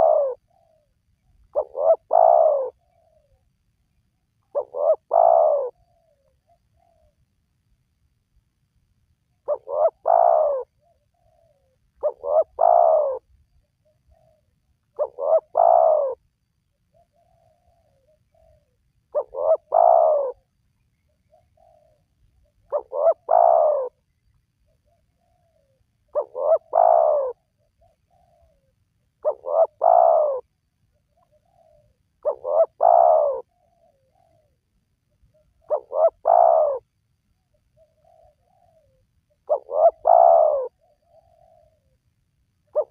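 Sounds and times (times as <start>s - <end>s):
dove cooing: 0.0s - 3.4s, 4.4s - 7.2s, 9.4s - 16.3s, 16.9s - 24.1s, 24.7s - 42.0s, 42.7s - 42.9s.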